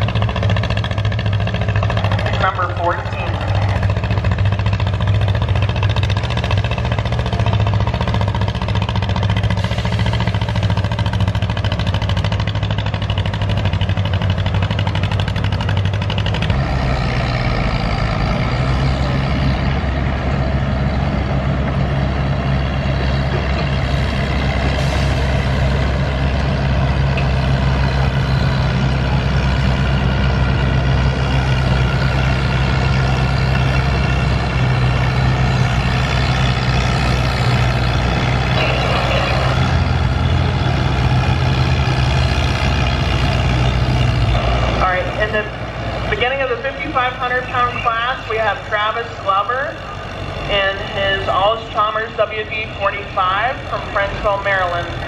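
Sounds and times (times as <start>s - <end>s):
tractor engine under load: 0.0s - 55.0s.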